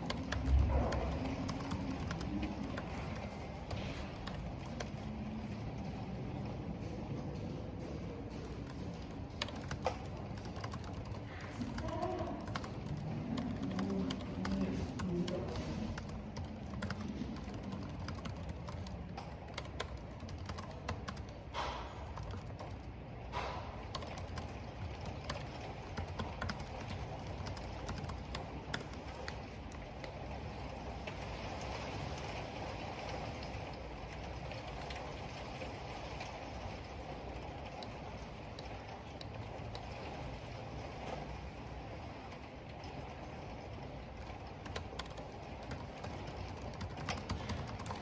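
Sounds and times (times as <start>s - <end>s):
typing on computer keyboard: 0.0s - 5.1s, 8.4s - 21.4s, 22.0s - 22.9s, 23.8s - 30.2s, 44.6s - 48.0s
wind and rain rushing: 0.0s - 48.0s.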